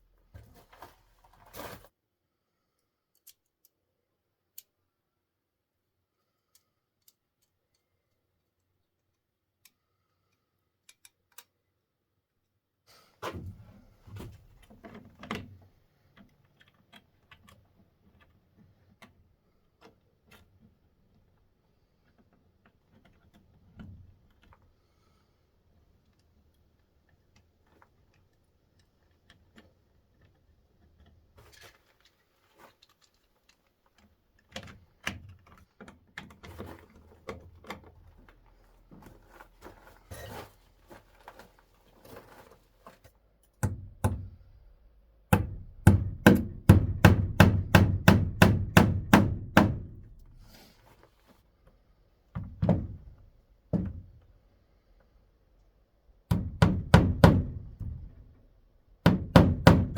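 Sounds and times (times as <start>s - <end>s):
hammer strikes: 45.3s - 50.0s.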